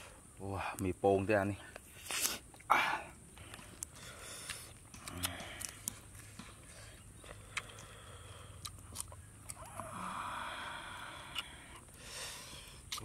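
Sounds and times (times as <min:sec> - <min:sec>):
breathy hiss: 0:01.9 - 0:06.0, 0:06.6 - 0:08.6, 0:09.6 - 0:13.0
chewing and crunching food: 0:03.3 - 0:13.0.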